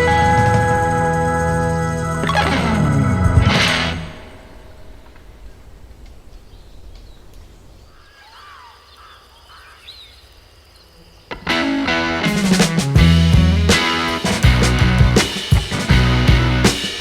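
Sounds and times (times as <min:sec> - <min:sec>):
music: 0:00.0 - 0:04.4, 0:11.4 - 0:17.0
bird chirps: 0:00.0 - 0:11.3
faint outdoor ambience: 0:00.0 - 0:17.0.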